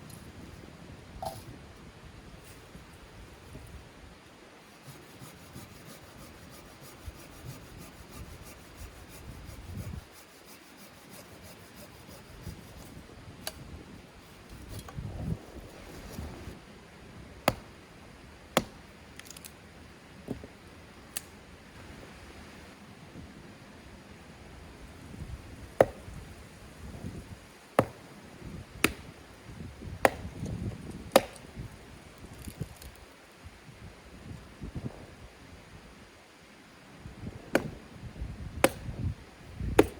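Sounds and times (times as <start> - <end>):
wood rubbed and scraped by hand: 4.6 - 13.0, 14.2 - 16.6.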